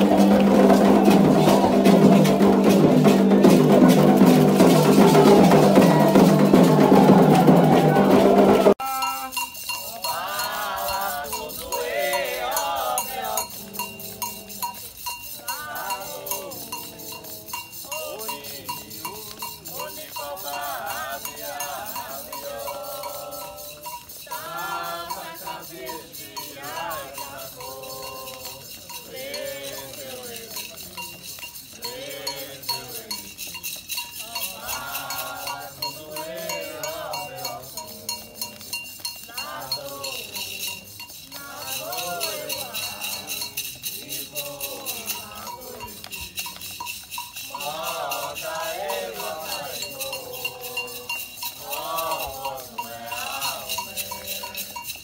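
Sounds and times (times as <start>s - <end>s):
metal bell percussion: 0.0s - 55.0s
voices singing a chant: 0.0s - 55.0s
rattle: 25.6s - 36.0s, 40.0s - 47.6s, 48.2s - 55.0s.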